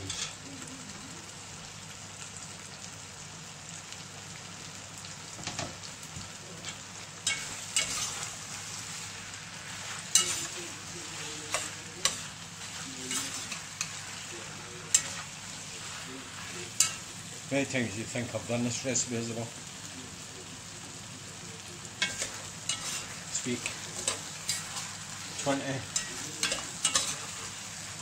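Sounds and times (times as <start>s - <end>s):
food sizzling in a pot: 0.0s - 28.0s
metal spoon clinking against pot: 7.2s - 8.2s, 10.1s - 10.6s, 16.8s - 17.1s, 22.0s - 24.8s, 25.9s - 27.4s.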